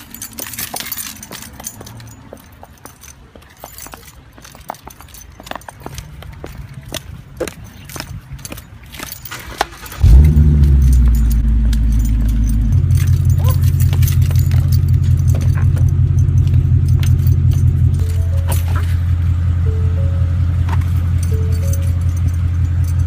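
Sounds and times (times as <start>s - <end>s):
car engine starting and idling: 9.8s - 23.0s.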